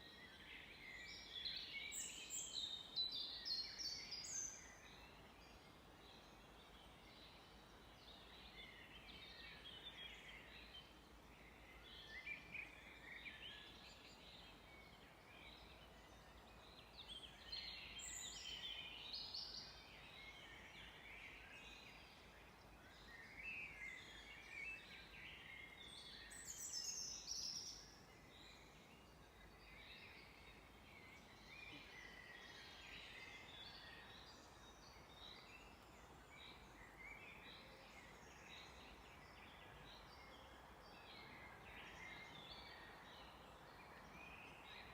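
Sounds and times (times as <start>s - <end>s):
songbirds chirping and trilling: 0.0s - 44.9s.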